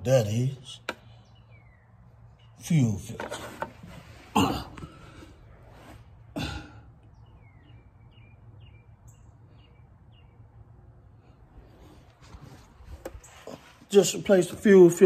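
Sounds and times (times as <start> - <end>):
small bird chirping: 1.0 - 2.8, 7.1 - 10.6.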